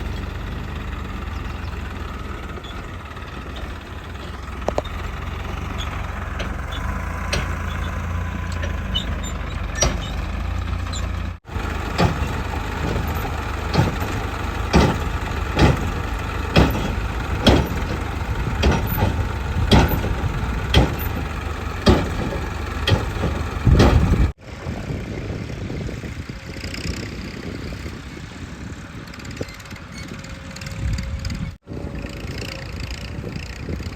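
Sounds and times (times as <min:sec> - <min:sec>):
diesel engine running: 0:00.0 - 0:33.9
metal knocks and clanks: 0:02.5 - 0:24.4.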